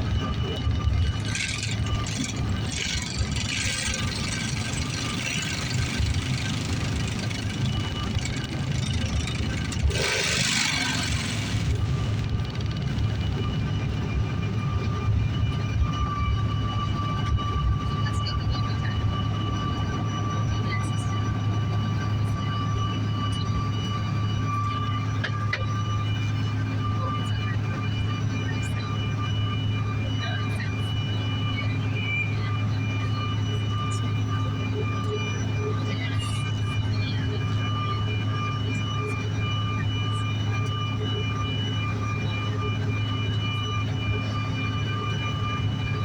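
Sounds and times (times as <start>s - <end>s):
jet cabin rumble: 0.0s - 46.0s.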